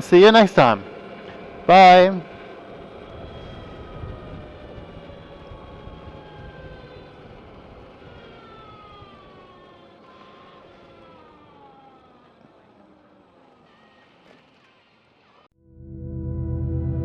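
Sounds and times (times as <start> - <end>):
low wind rush: 0.0 - 9.7
electric motorcycle motor whine: 0.6 - 15.5.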